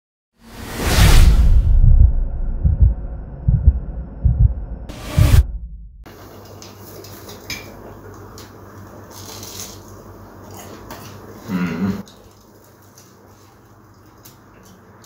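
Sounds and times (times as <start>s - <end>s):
person humming: 11.5s - 12.0s.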